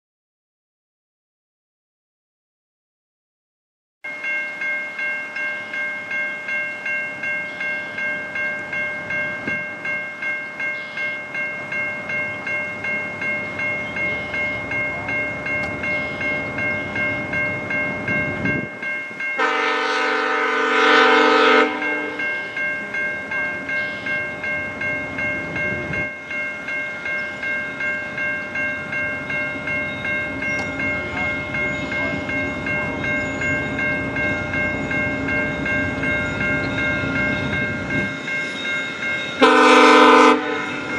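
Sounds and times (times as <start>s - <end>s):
bell ringing: 4.1s - 40.9s
train approaching: 4.1s - 40.9s
locomotive horn: 19.4s - 22.2s, 39.4s - 40.9s.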